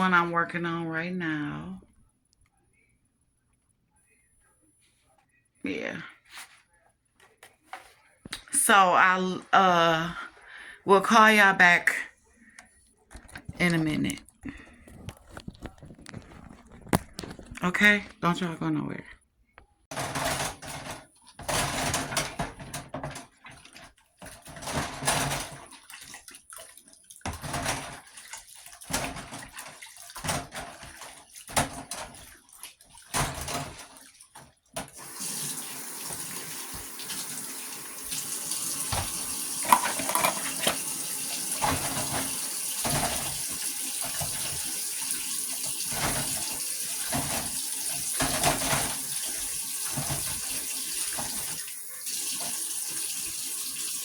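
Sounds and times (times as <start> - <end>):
faucet running into sink: 19.9 - 54.0
dishes clinking: 38.9 - 40.9.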